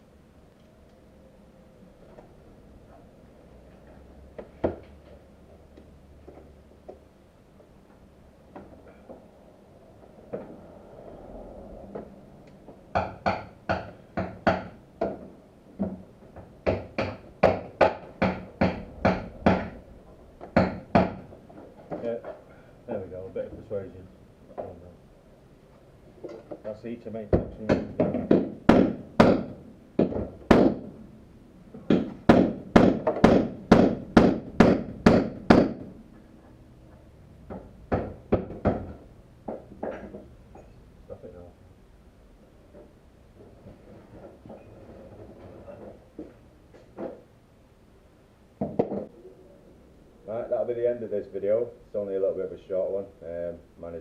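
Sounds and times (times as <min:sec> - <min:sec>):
hammer blows: 0:16.6 - 0:21.4.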